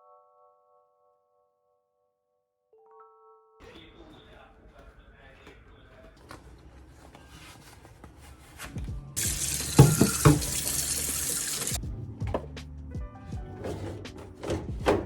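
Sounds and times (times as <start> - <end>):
tap running into a sink: 9.2 - 12.4.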